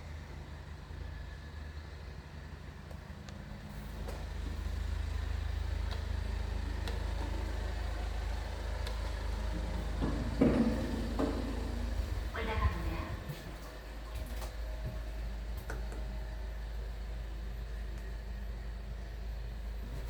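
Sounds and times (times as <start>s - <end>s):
elevator humming: 0.0s - 20.0s.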